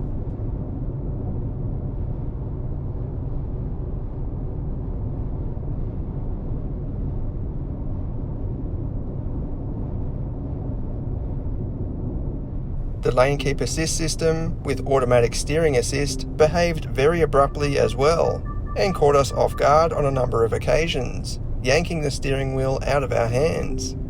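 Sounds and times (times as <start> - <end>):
car road and engine rumble: 12.8 - 24.0.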